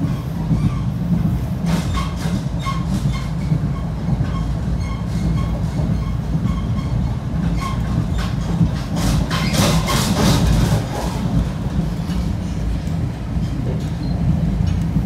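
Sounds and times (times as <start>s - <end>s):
train wheels rumbling on rails: 0.0s - 15.0s
light rail clicks: 7.4s - 15.0s.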